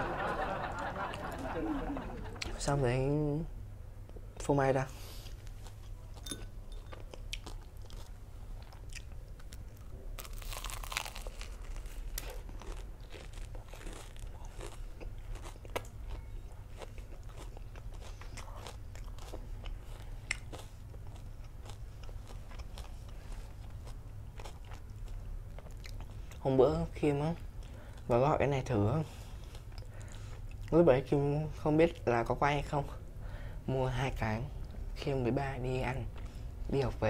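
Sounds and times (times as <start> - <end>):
crunching fried food: 6.9 - 26.5.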